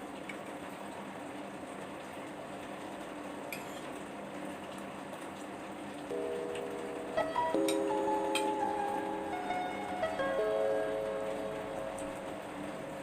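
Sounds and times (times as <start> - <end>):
rain hissing: 0.0 - 13.0
background music: 6.1 - 13.0.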